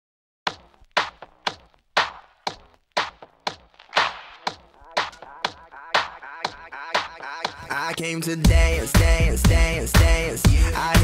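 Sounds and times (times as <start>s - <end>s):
drum beat: 0.5s - 10.2s.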